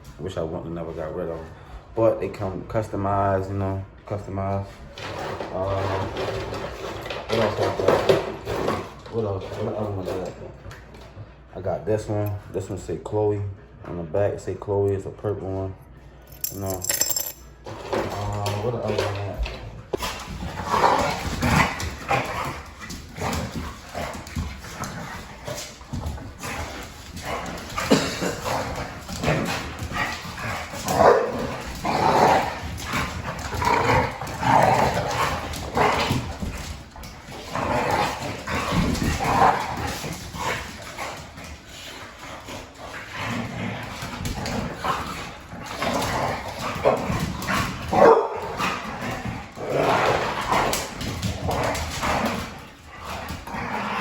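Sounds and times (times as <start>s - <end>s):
dog barking: 31.0s - 31.4s, 48.0s - 48.4s.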